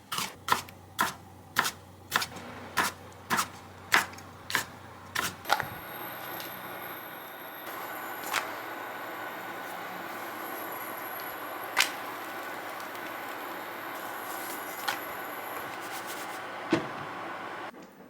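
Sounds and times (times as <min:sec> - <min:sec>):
vehicle interior rumbling: 0:07.7 - 0:17.7.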